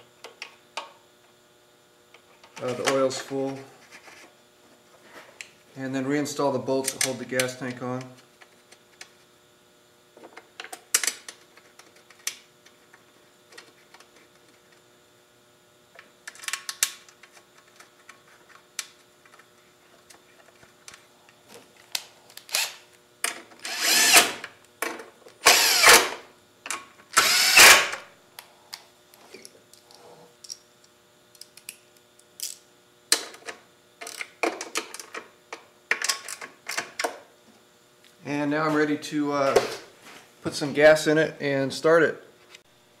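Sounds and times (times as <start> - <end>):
power drill driving bolts: 23.6 - 24.4, 25.4 - 26.2, 27.2 - 28.0.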